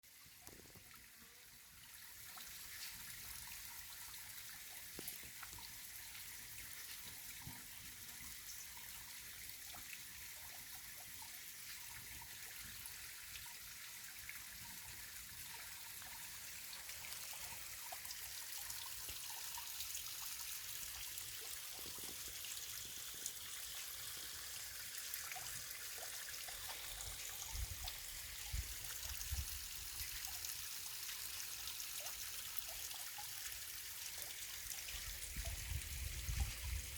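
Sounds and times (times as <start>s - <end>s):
stream flowing over rocks: 14.1s - 36.9s.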